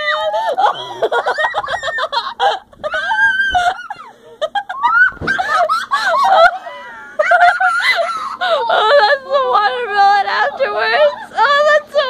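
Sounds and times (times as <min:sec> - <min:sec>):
children shrieking and giggling: 0:00.0 - 0:09.0.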